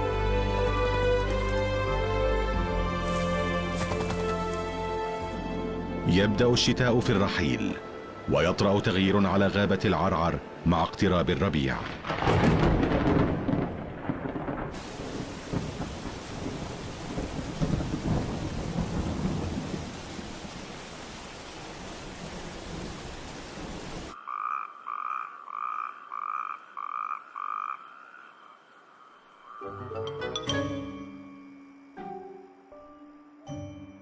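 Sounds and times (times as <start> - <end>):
steady rain: 10.6 - 24.2
rumbles of thunder: 11.8 - 21.0.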